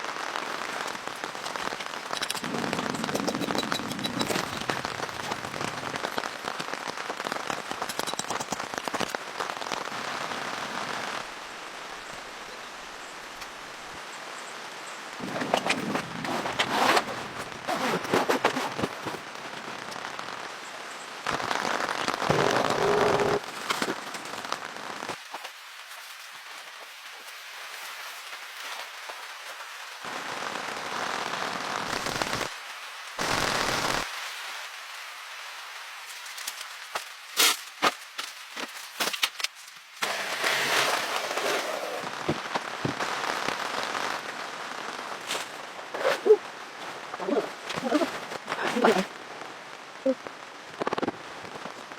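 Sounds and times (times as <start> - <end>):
rain pattering on a surface: 0.0 - 51.9.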